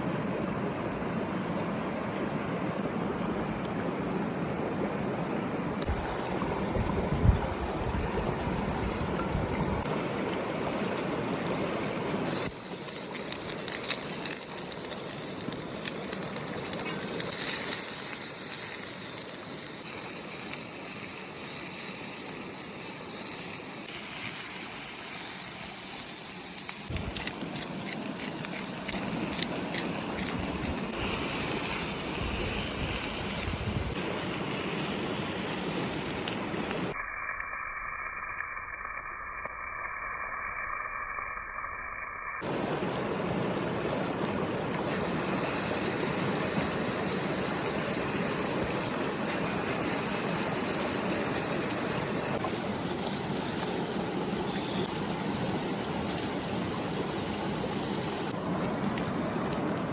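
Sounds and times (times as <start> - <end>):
high hiss: 12.2 - 58.4.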